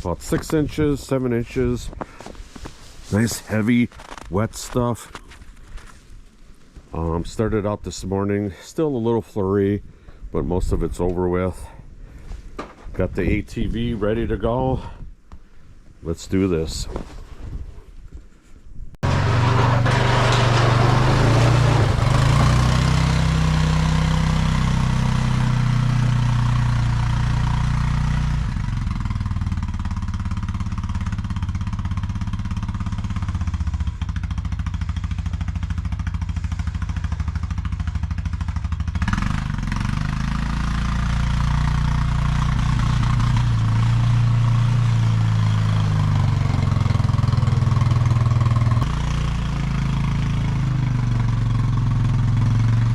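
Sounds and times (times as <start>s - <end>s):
atv engine running: 19.0s - 52.9s.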